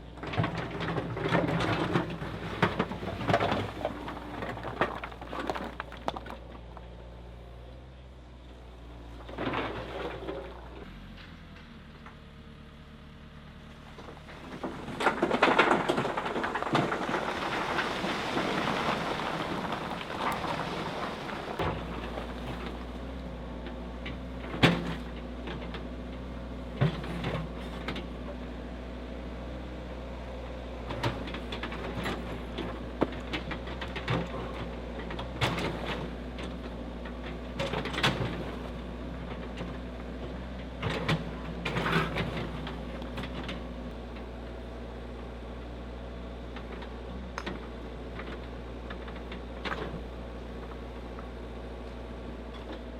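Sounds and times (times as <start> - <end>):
heavy machinery engine rumble: 0.0 - 52.9
machinery clunks and knocks: 14.0 - 26.0, 26.6 - 28.2, 30.9 - 44.3.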